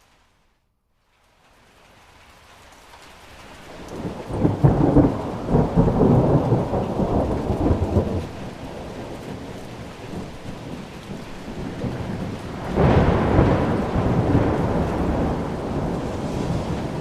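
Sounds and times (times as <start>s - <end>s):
rain falling: 0.0s - 17.0s
thunder rumbling: 3.7s - 17.0s.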